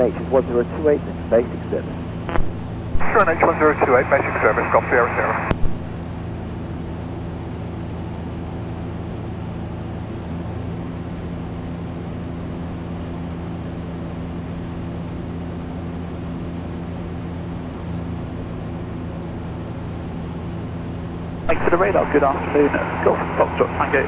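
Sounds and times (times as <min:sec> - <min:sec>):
light aircraft engine droning: 0:00.0 - 0:24.0.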